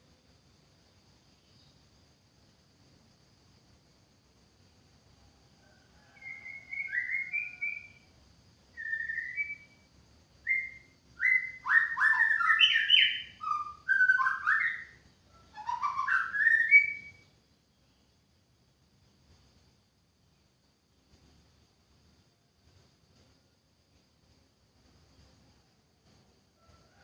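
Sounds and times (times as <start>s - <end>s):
bird singing whistled phrases: 6.2s - 8.0s, 8.8s - 9.8s, 10.4s - 17.2s.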